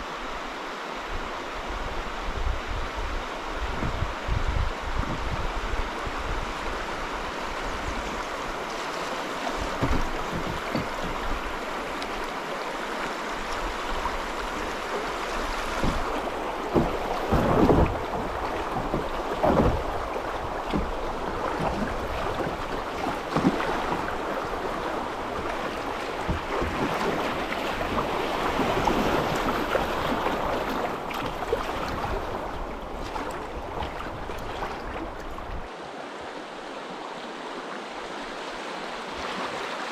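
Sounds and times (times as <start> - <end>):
river water rushing and splashing: 0.0 - 39.9
wind buffeting microphone: 1.7 - 8.6.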